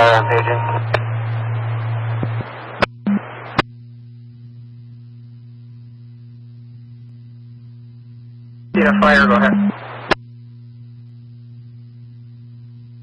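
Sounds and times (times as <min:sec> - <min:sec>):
radio channel hiss: 0:00.0 - 0:03.6, 0:08.7 - 0:10.2
low electrical hum: 0:00.0 - 0:13.0.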